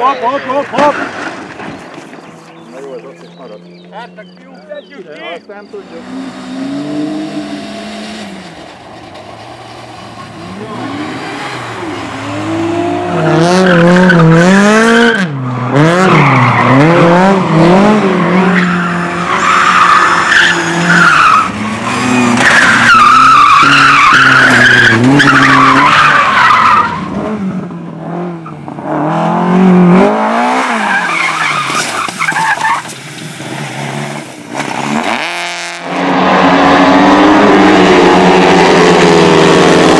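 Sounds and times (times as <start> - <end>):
car engine revving hard: 5.8 - 31.7, 33.4 - 39.9
tyres squealing and skidding: 9.1 - 27.3, 30.5 - 35.3.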